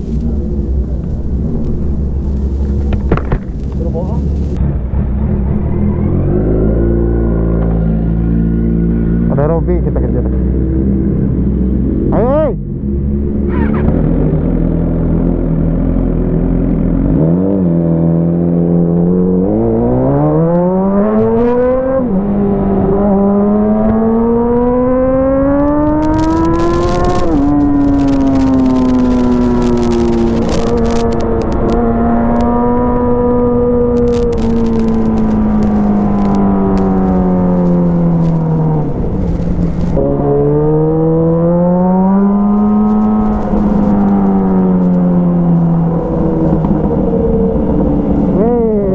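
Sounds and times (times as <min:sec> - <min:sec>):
wind buffeting microphone: 0:00.0 - 0:06.3, 0:25.6 - 0:48.9
motorcycle engine accelerating: 0:00.0 - 0:48.9.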